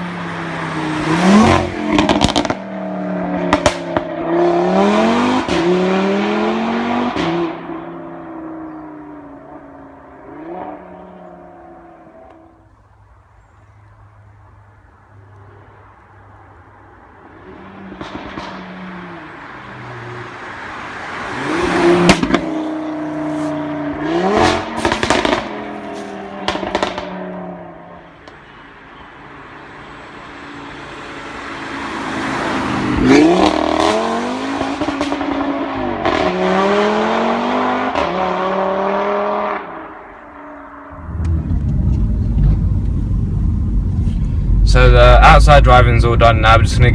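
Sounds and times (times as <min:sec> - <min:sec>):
exhaust pops and crackles: 0:01.9 - 0:02.6, 0:03.5 - 0:04.1, 0:18.0 - 0:18.6, 0:22.1 - 0:22.5, 0:24.8 - 0:25.6, 0:26.4 - 0:27.1, 0:41.1 - 0:46.9
car engine driving by: 0:29.2 - 0:46.9.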